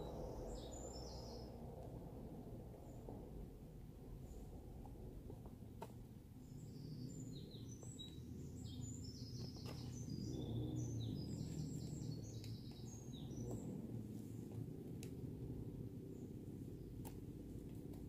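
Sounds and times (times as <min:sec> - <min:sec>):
songbird chirping: 0:00.0 - 0:02.0, 0:05.8 - 0:14.6
low background rumble: 0:00.0 - 0:18.0.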